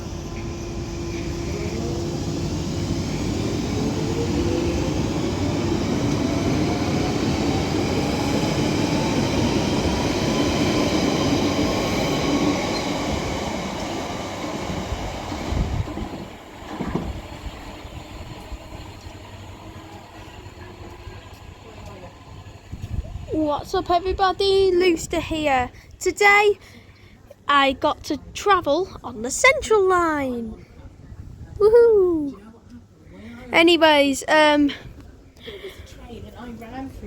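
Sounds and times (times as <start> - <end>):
train motor whine: 0.0 - 23.2.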